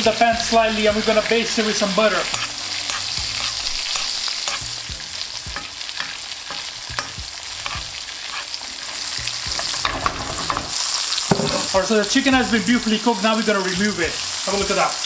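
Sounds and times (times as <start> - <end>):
meat sizzling in frying pan: 0.0 - 15.0
metal spoon clicking on pan: 2.3 - 4.7, 5.6 - 7.8.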